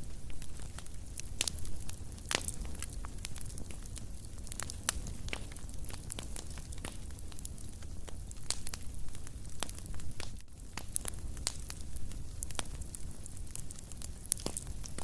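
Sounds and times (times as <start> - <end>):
fire rumble and hiss: 0.0 - 15.0
wood fire crackling: 0.0 - 15.0.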